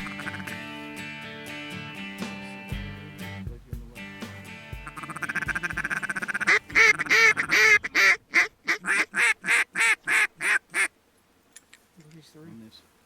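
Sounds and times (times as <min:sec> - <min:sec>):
duck call quacks: 0:00.0 - 0:00.8, 0:04.8 - 0:10.9
duck call raspy chatter: 0:00.0 - 0:00.8, 0:04.8 - 0:10.9.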